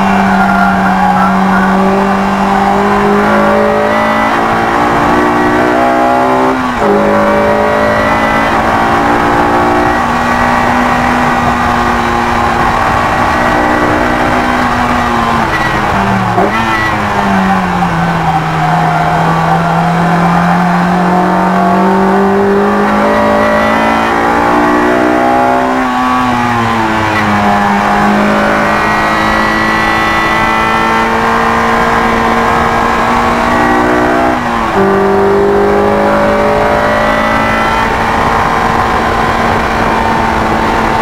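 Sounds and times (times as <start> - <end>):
car engine at high revs: 0.0 - 41.0.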